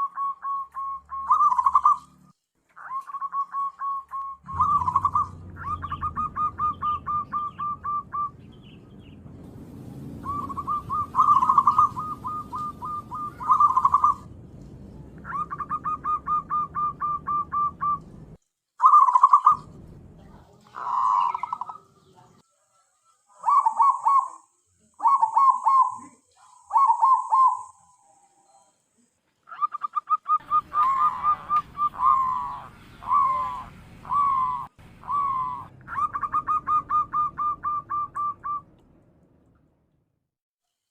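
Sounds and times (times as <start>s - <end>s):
dove cooing: 0.0s - 2.2s, 2.8s - 8.7s, 10.2s - 14.3s, 15.2s - 18.2s, 20.6s - 22.1s, 23.3s - 28.6s, 29.5s - 38.7s.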